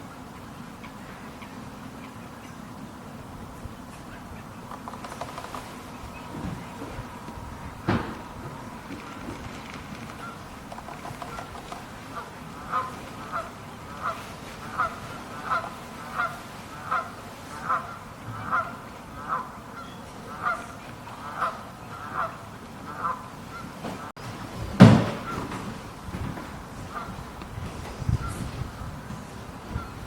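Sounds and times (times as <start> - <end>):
bird honking call: 5.9 - 24.1
loud thump: 7.8 - 8.5.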